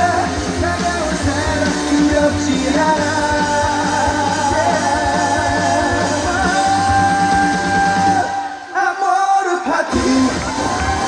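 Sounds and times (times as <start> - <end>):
band playing with bass beat: 0.0 - 8.6, 9.9 - 11.0.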